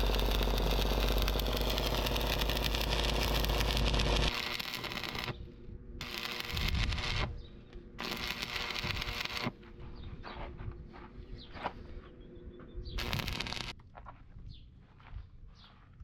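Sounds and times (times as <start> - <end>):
steady machine hum: 0.0 - 10.0, 12.2 - 13.7.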